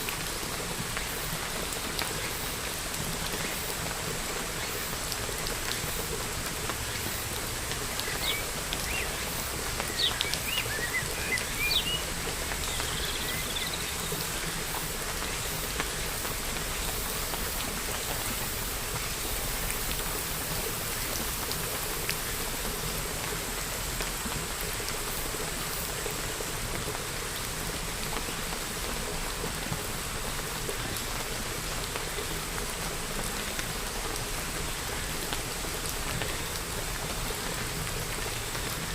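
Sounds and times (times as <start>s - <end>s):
steady rain falling: 0.0s - 38.9s
bird chirping: 9.9s - 12.0s.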